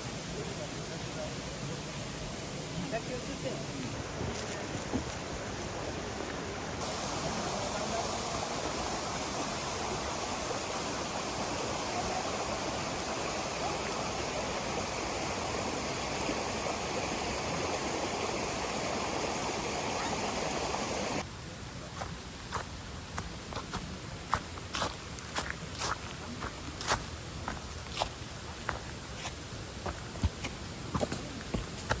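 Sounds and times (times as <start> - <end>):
flowing water rushing: 0.0 - 21.3.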